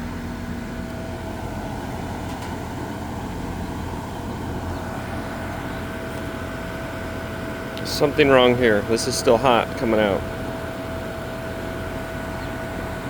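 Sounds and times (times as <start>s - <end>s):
pool heating equipment humming: 0.0s - 13.0s.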